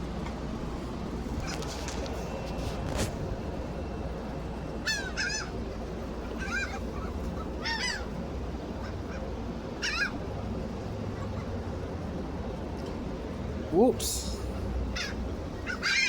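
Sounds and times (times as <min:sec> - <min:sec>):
low background noise: 0:00.0 - 0:16.0
seagulls calling: 0:04.7 - 0:10.3, 0:14.2 - 0:16.0.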